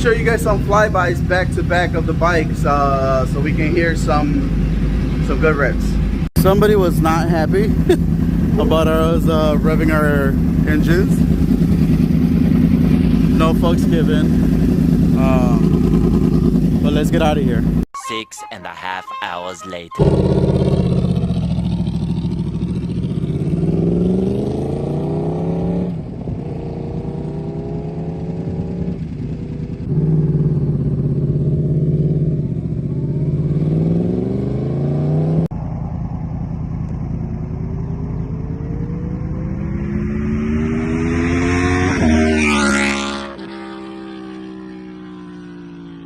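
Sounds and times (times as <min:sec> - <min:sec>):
motorcycle accelerating hard: 0:06.4 - 0:17.8, 0:20.0 - 0:46.0
motorcycle passing by: 0:06.8 - 0:17.6, 0:20.0 - 0:46.0.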